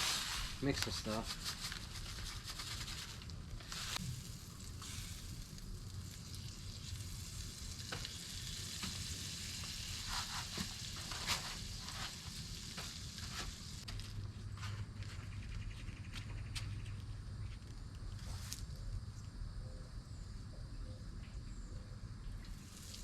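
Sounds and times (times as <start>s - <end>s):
oil crackling and popping: 0.0s - 14.3s, 22.4s - 23.0s
fish frying in hot oil: 1.4s - 13.9s, 22.5s - 23.0s.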